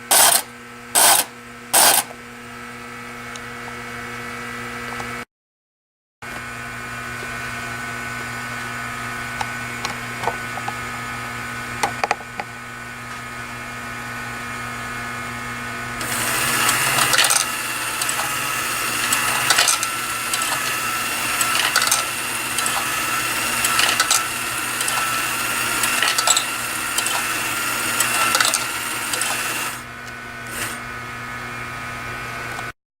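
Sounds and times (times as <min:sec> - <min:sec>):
mechanical whirring: 0:16.0 - 0:31.0.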